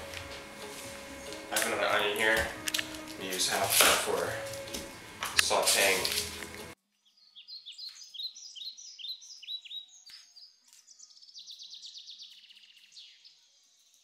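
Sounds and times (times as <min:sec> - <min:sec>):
songbird chirping and trilling: 0:06.9 - 0:14.0.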